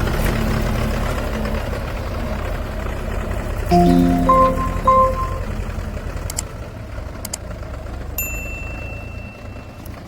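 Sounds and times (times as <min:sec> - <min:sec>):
thin high ding: 0:03.7 - 0:05.6.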